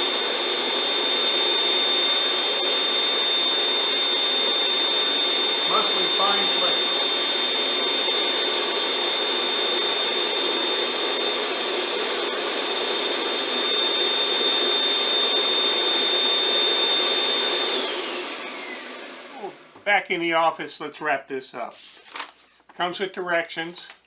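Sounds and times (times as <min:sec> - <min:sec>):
snow machine blower whooshing: 0:00.0 - 0:19.7
high whine: 0:02.6 - 0:08.9.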